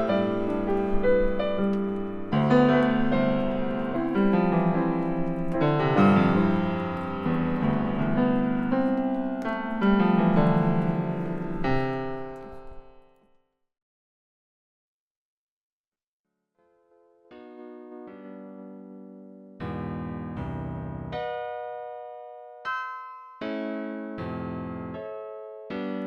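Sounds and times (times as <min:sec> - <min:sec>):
slow solo piano chords: 0:00.0 - 0:13.1.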